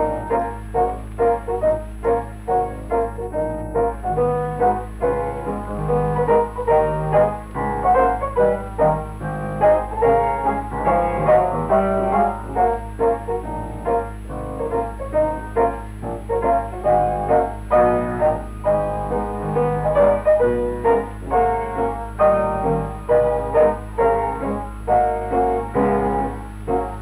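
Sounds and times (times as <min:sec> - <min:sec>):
piano music: 0:00.0 - 0:27.0
steady low hum: 0:00.0 - 0:27.0.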